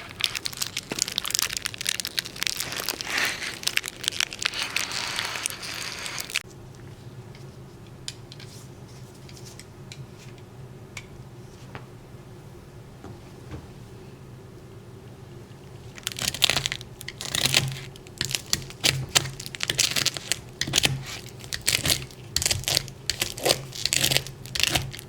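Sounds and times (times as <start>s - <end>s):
dense crinkling and crackling: 0.0s - 6.4s, 15.7s - 25.0s
steady low hum: 0.0s - 25.0s.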